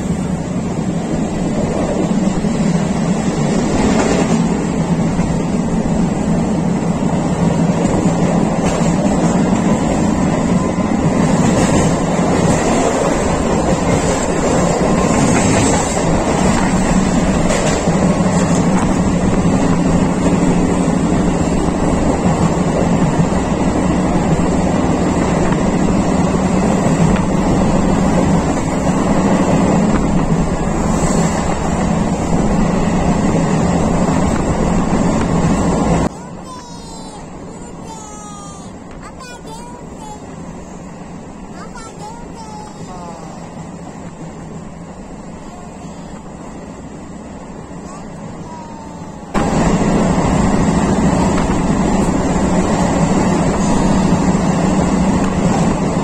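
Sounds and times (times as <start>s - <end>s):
electric train running on track: 0.0s - 56.0s.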